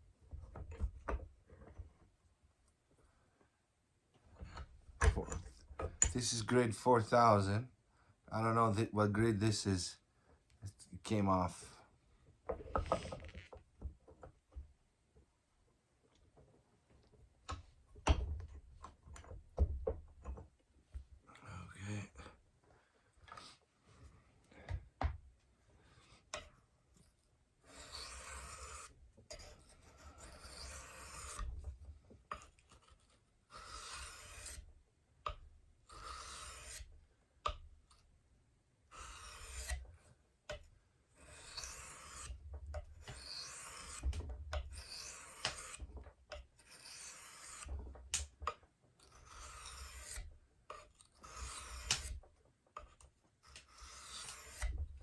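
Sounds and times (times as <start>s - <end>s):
knife scraping on whetstone: 27.6s - 31.6s, 32.3s - 34.7s, 35.9s - 36.9s, 38.9s - 39.9s, 41.2s - 44.1s, 44.7s - 45.8s, 46.5s - 47.7s, 48.5s - 52.2s, 52.8s - 54.8s.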